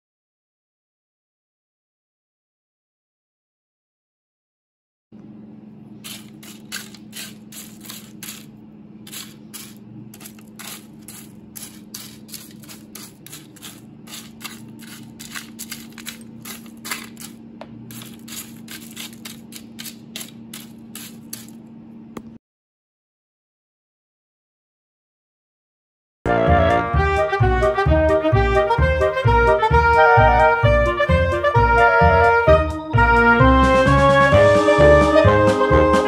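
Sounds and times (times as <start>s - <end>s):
popcorn crunching and rustling: 5.9s - 21.6s.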